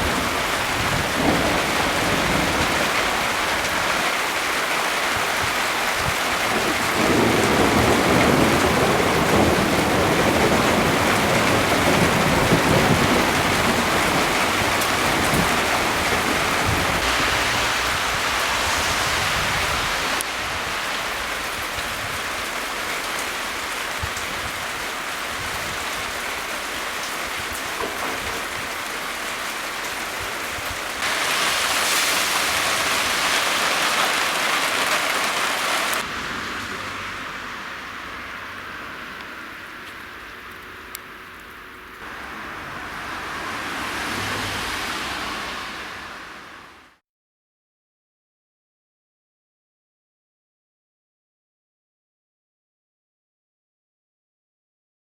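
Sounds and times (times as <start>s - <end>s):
low rolling thunder: 0.0s - 4.4s, 5.2s - 33.6s
rain pattering: 0.0s - 46.4s.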